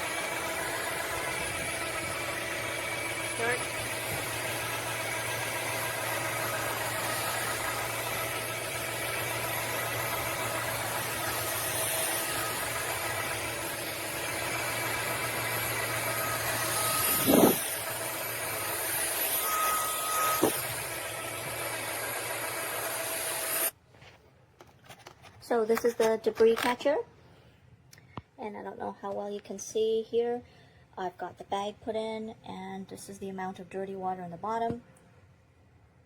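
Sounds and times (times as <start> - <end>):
vacuum mop motor whine: 0.0 - 23.7.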